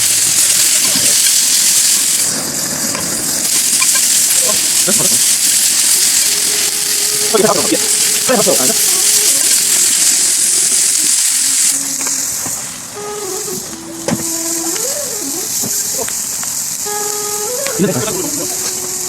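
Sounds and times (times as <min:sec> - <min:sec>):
food sizzling hiss: 0:00.0 - 0:19.0
voices: 0:04.2 - 0:11.0, 0:11.6 - 0:19.0.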